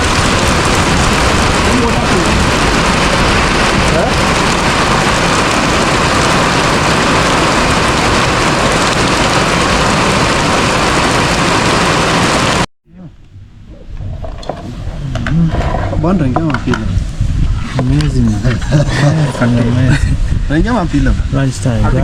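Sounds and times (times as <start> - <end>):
heavy rain pouring: 0.0 - 12.7, 13.3 - 22.0.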